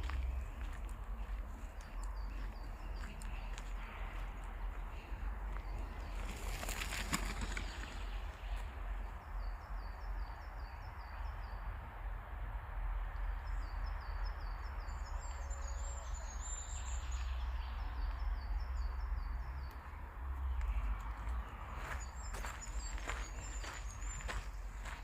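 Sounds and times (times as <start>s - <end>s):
bird chirping: 13.4s - 25.0s.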